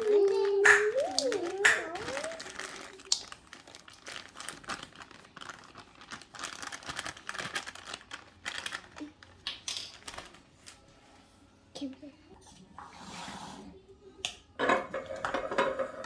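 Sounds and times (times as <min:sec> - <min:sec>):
packaging crinkling and rustling: 0:00.0 - 0:10.8.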